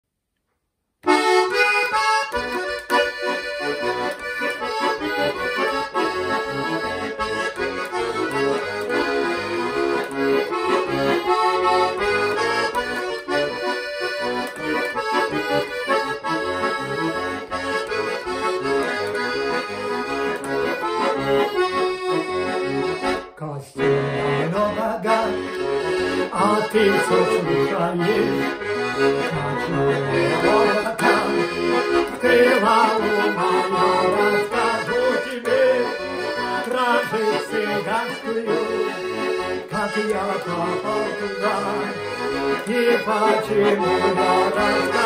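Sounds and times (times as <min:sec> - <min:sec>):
button accordion playing: 0:01.0 - 0:45.0.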